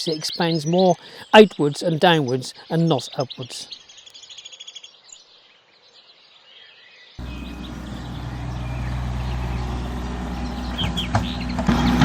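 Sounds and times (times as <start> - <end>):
birds chirping: 0.0 - 12.0
machine engine running: 7.2 - 12.0.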